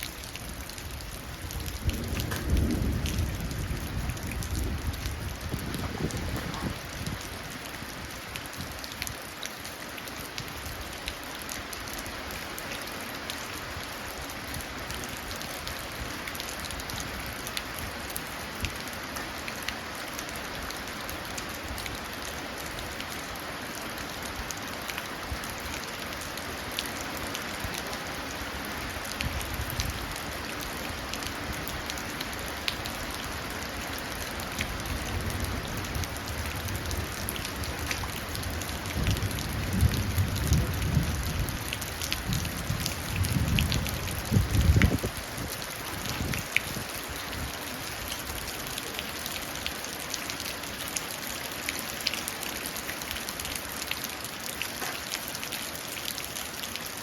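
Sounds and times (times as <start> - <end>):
rain falling into puddle: 0.0 - 57.0
distant thunder rumble: 1.6 - 7.0.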